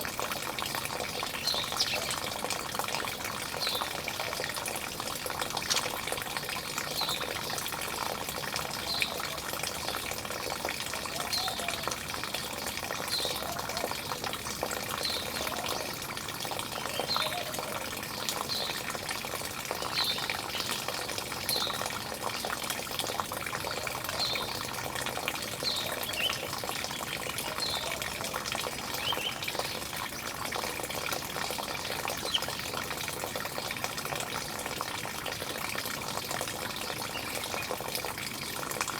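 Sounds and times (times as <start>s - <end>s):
small birds chirping: 1.3s - 2.4s.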